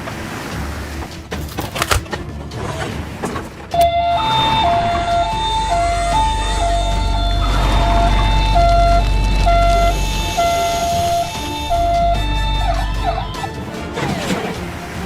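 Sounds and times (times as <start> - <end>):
low engine rumble: 2.2 - 15.0
two-tone emergency siren: 3.8 - 13.6.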